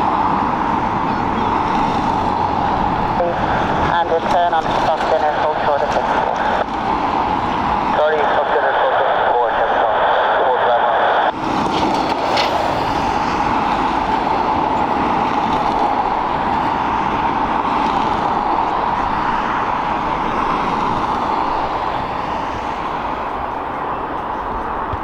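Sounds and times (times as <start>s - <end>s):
jet engines rushing: 0.0s - 25.0s.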